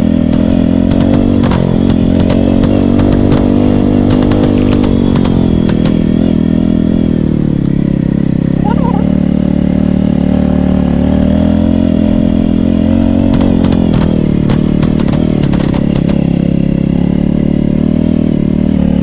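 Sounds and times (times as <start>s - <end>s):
motorcycle engine running: 0.0s - 19.0s
sharp clicks: 0.3s - 6.5s, 12.2s - 16.4s.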